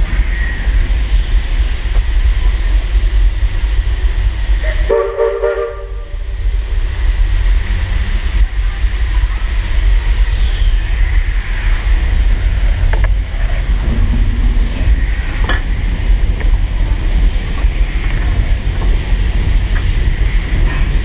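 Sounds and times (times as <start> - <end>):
steady low rumble: 0.0 - 21.0
steam whistle blast: 4.6 - 6.2.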